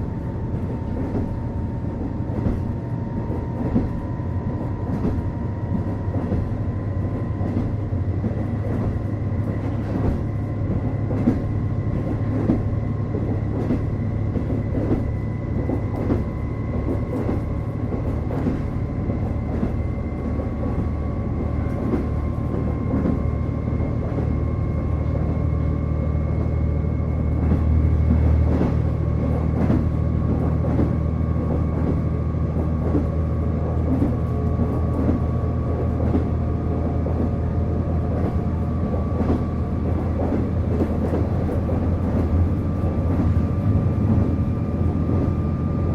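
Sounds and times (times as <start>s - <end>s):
diesel engine hum: 0.0s - 45.9s
rail-joint clicks from wheels: 4.8s - 20.9s.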